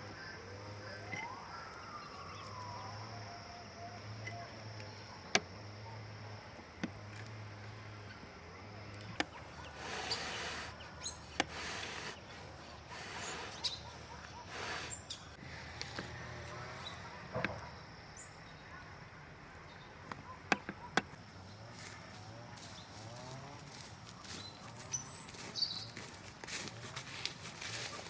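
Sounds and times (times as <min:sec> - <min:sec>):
small birds chirping: 0:00.0 - 0:26.4
rustling or scraping noises: 0:09.7 - 0:16.8, 0:21.7 - 0:28.0.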